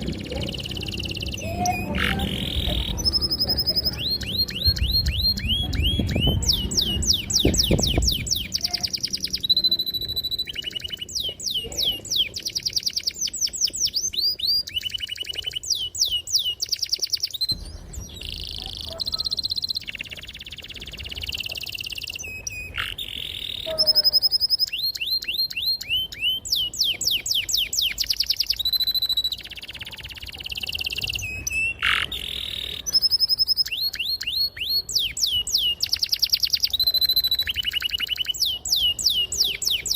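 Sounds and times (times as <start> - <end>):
low rumble: 0.0 - 10.5, 17.5 - 21.5
canary singing: 0.0 - 39.9.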